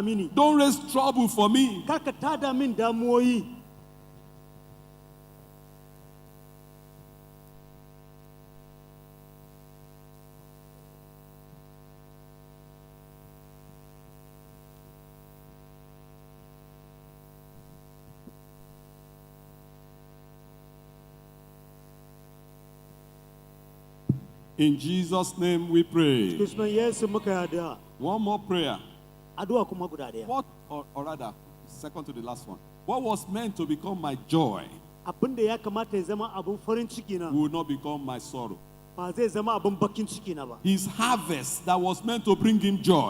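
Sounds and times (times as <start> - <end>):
electrical mains hum: 0.0 - 43.0
faint knocks: 24.1 - 24.5.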